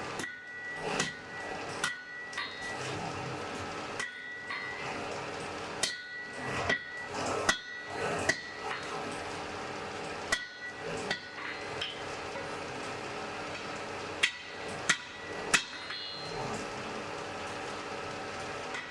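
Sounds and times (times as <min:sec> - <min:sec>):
hammer striking an anvil: 0:00.2 - 0:02.8, 0:04.0 - 0:04.8, 0:05.8 - 0:08.8, 0:10.3 - 0:12.0, 0:13.6 - 0:16.4.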